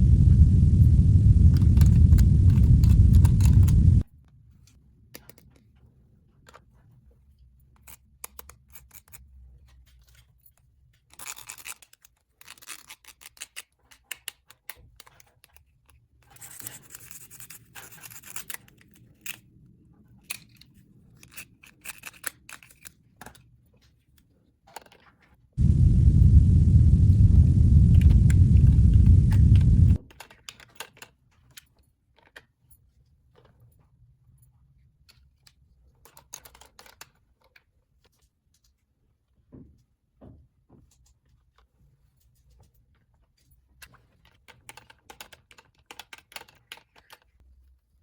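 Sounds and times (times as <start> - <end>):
loud low rumble: 0.0 - 4.0, 25.6 - 30.1.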